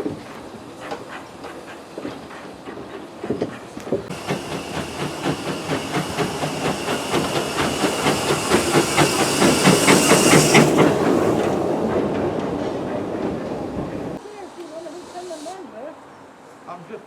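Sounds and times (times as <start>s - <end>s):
steam hissing: 4.1s - 12.0s, 14.2s - 15.8s
steam locomotive beat: 4.1s - 12.5s.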